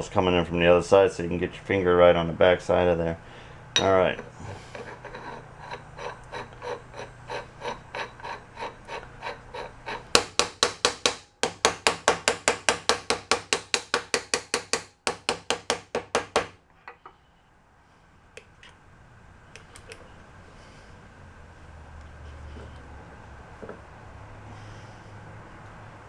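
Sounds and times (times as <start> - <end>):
hammer tapping: 3.8 - 17.1.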